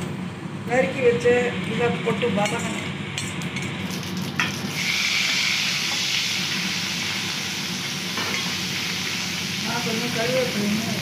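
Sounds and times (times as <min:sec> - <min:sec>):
vegetables sizzling in hot oil: 0:03.0 - 0:11.0.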